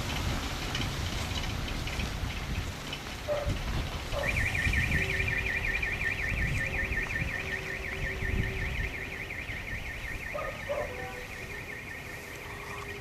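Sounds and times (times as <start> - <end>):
electronic alarm warbling: 4.2 - 13.0.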